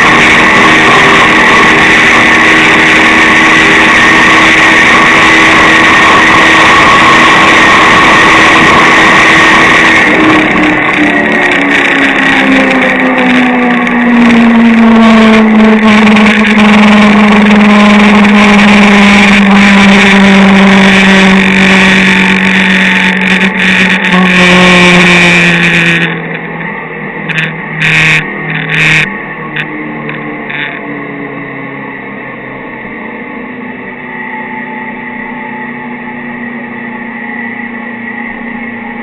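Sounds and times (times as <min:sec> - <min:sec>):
wind rush: 0:00.0 - 0:24.2
motorcycle engine running hard: 0:00.0 - 0:39.0.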